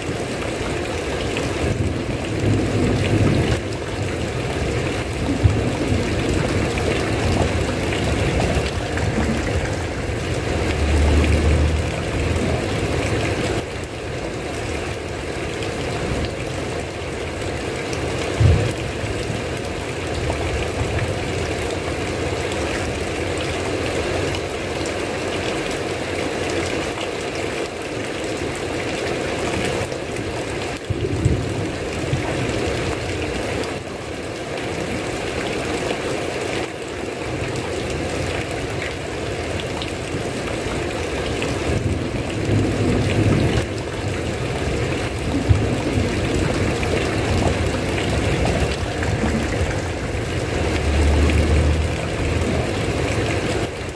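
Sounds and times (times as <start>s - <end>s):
heavy rain falling: 0.0s - 53.9s
low rumbles: 5.3s - 13.6s, 45.3s - 53.4s.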